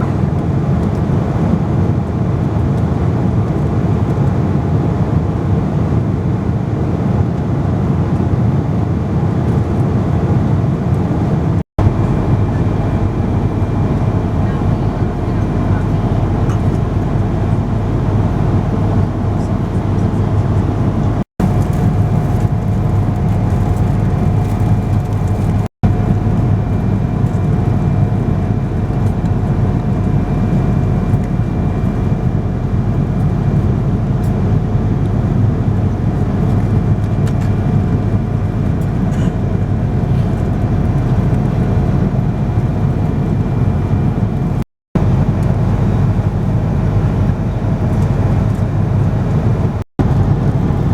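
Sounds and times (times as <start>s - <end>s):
airplane cabin engine drone: 0.0s - 50.9s
faint steady whine: 11.8s - 36.0s.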